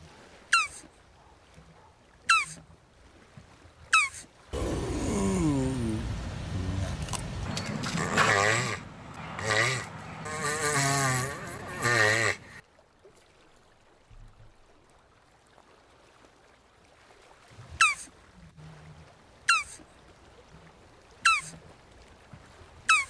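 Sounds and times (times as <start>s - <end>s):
tortoise groaning call: 4.0s - 12.6s, 19.5s - 19.8s, 21.3s - 21.6s.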